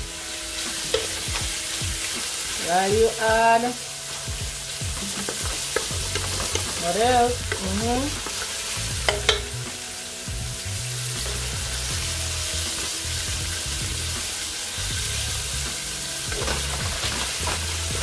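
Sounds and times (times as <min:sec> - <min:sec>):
vegetables sizzling in oil: 0:00.0 - 0:18.0
wooden spatula stirring: 0:05.0 - 0:09.5.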